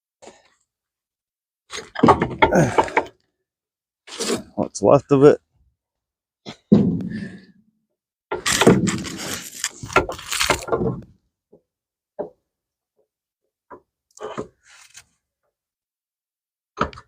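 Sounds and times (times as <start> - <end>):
thunk on car parts: 6.7 - 7.4.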